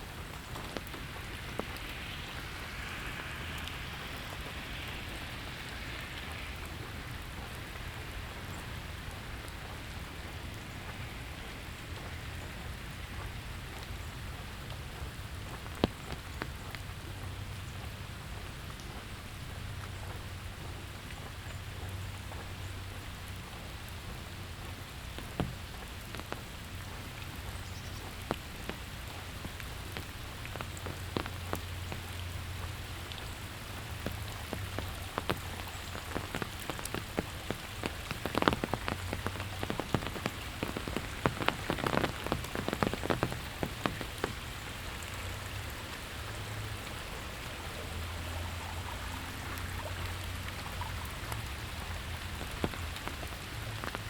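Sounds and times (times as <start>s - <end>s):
sharp ticks of raindrops: 0.0s - 54.0s
steady rain falling: 0.0s - 54.0s.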